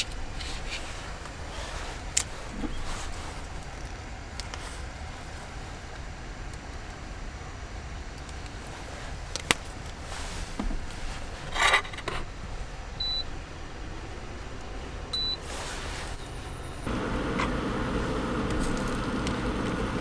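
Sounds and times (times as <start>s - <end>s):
high electronic beeps: 15.2s - 15.5s.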